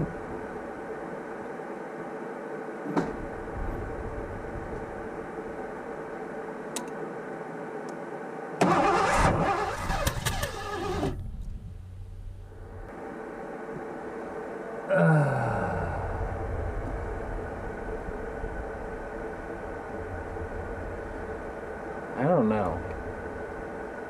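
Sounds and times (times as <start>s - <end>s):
click: 6.7s - 7.0s
engine turning over: 8.6s - 11.4s.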